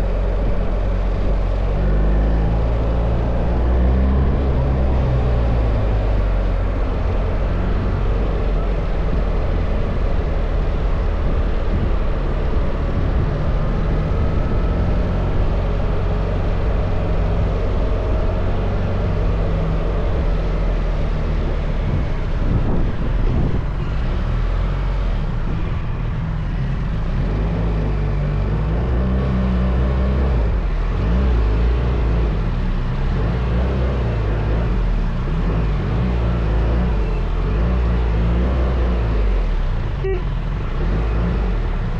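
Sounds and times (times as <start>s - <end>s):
wind noise rushing: 21.8s - 23.8s.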